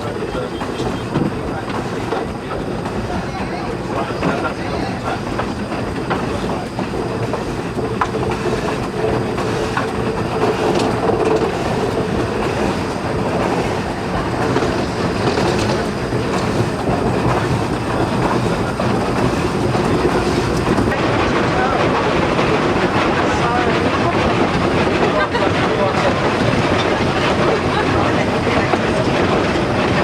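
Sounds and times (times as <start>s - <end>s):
train rumbling on rails: 0.0s - 30.0s.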